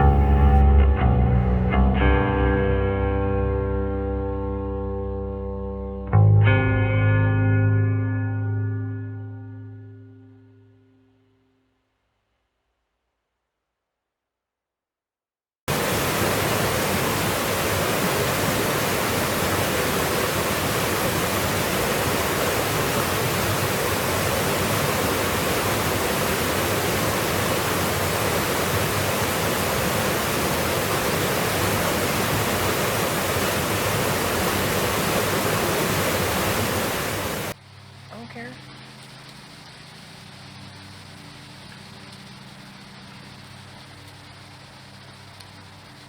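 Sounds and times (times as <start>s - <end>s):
steady rushing noise: 15.7s - 37.6s.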